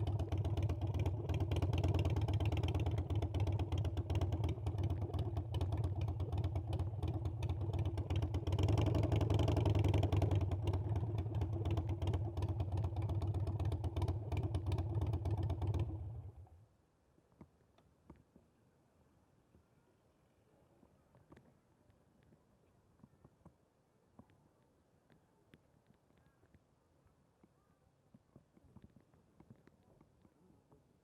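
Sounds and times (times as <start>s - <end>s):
motorcycle engine rumbling: 0.0s - 16.6s.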